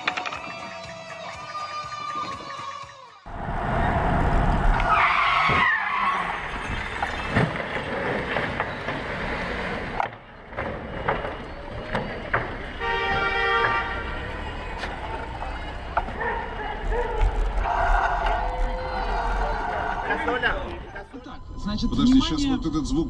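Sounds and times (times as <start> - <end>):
car road and engine noise: 3.2 - 23.0
car horn: 12.5 - 15.4.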